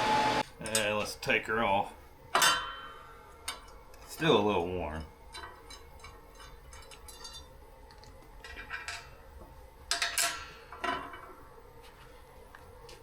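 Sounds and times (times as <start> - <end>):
metal plate clinking and rattling: 5.4 - 7.5.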